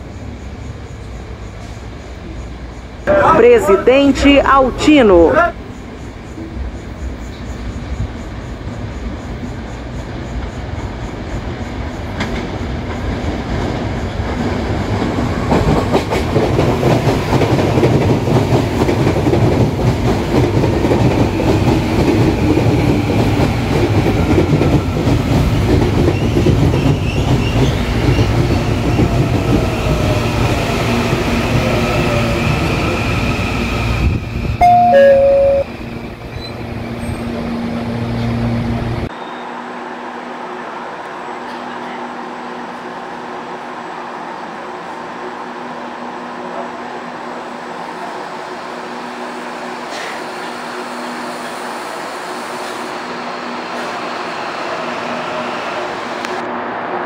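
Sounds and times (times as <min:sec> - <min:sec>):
electric train passing: 0:00.0 - 0:57.0
train humming at platform: 0:00.0 - 0:57.0
two-note falling chime: 0:34.6 - 0:35.7.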